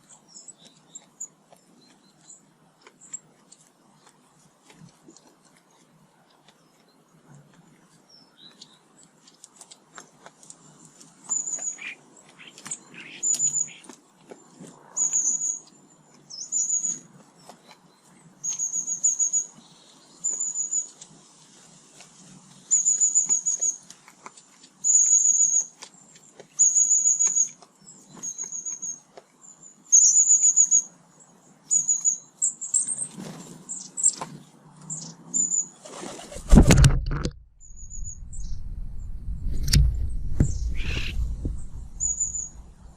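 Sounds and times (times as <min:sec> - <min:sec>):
songbird trilled calls: 0:11.3 - 0:13.9, 0:26.6 - 0:30.9, 0:31.7 - 0:33.0, 0:40.4 - 0:42.9.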